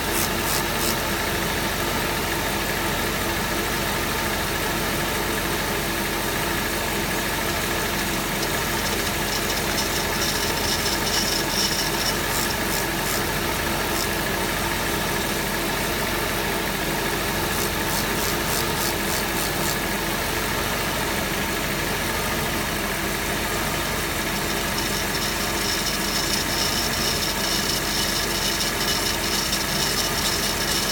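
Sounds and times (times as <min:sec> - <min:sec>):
high squealing drive belt: 0:00.0 - 0:30.9
car engine idling: 0:01.3 - 0:12.1.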